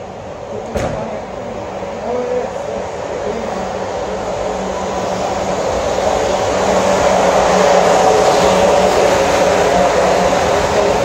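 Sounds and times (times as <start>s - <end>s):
electric train passing: 0.0s - 11.0s.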